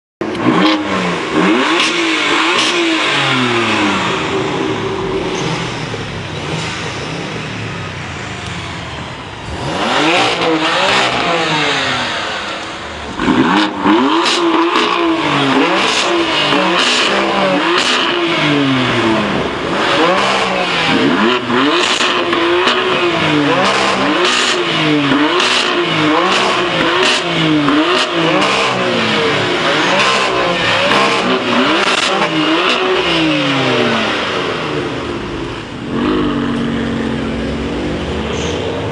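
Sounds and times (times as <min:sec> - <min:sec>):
car engine revving: 0:00.2 - 0:38.9
exhaust cracks: 0:09.4 - 0:38.9.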